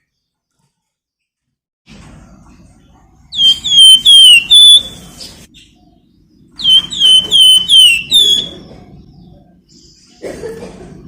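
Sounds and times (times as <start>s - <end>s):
songbird whistled calls: 3.3s - 5.4s, 6.6s - 8.7s.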